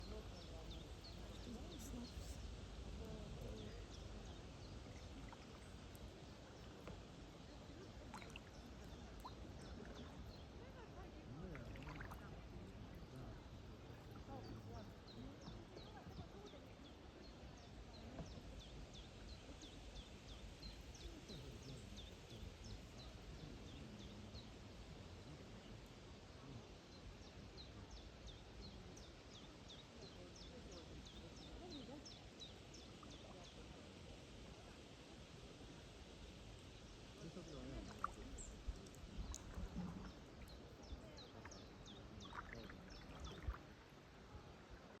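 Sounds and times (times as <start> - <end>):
small birds chirping: 36.6 - 43.7.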